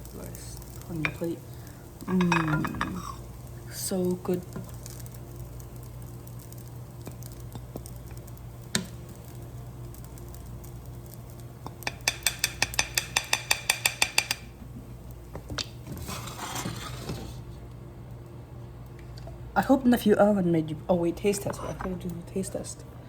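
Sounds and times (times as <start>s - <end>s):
metal spoon clinking on a plate: 2.1s - 3.1s.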